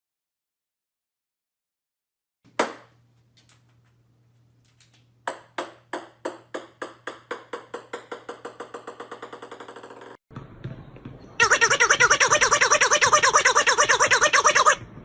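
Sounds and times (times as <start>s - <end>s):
small ball bouncing on hard surface: 5.2s - 11.2s.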